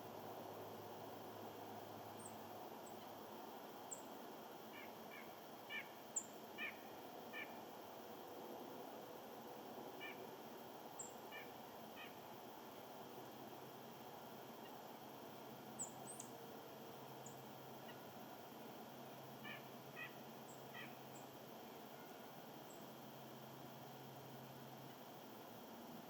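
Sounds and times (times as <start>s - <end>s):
faint steady hiss: 0.0s - 26.0s
small birds calling: 4.7s - 7.6s, 11.0s - 12.2s, 15.8s - 16.4s, 19.4s - 21.3s.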